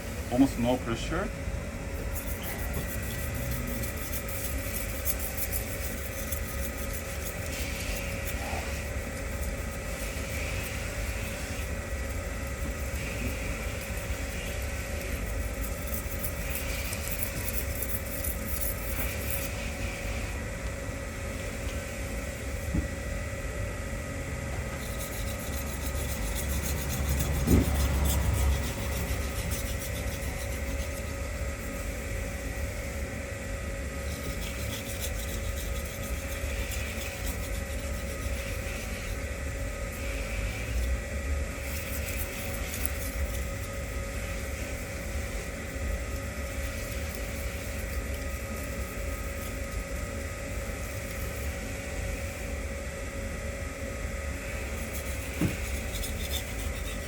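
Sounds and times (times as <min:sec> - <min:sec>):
steady low hum: 0:00.0 - 0:57.0
knife scraping on whetstone: 0:02.0 - 0:20.3, 0:24.7 - 0:32.0, 0:34.0 - 0:41.0, 0:41.6 - 0:44.6, 0:54.7 - 0:57.0.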